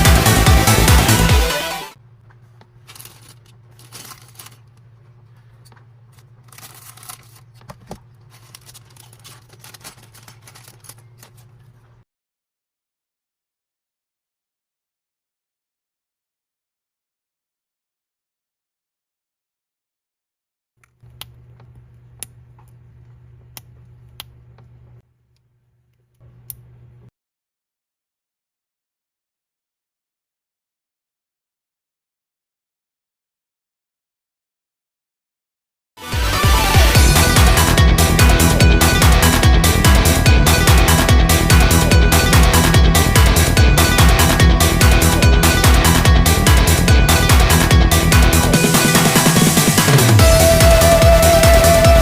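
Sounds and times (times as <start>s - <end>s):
steady low hum: 2.0s - 12.0s
plastic parts and packaging rustling: 2.2s - 12.0s.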